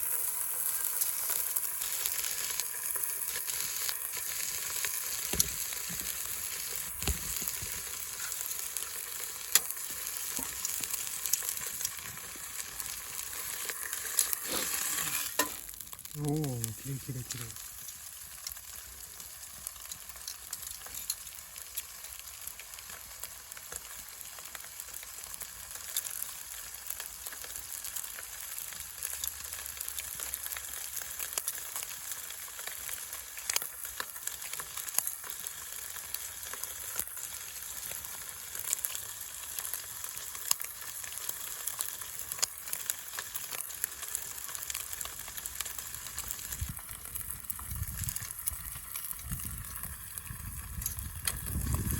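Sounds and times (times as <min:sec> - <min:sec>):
steak sizzling in a pan: 0:00.0 - 0:51.9
fat spitting and popping: 0:14.2 - 0:15.5.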